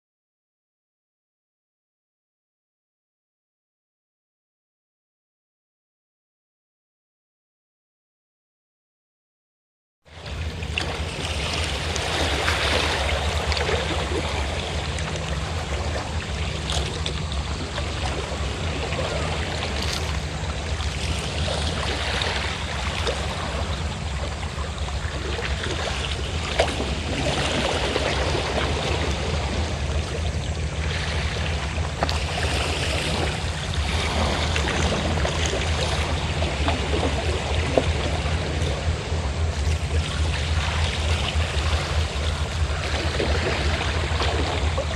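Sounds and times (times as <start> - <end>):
boat engine humming: 10.1 - 44.9
sea waves washing: 10.1 - 44.9.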